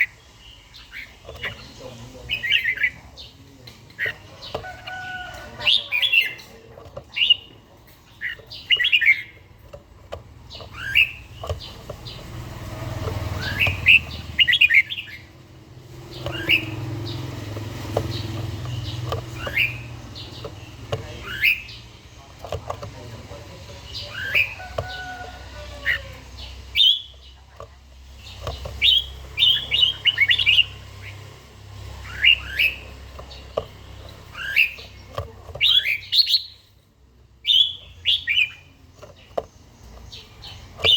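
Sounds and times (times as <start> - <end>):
bird singing warbling phrases: 0.0 - 36.8, 37.4 - 40.9.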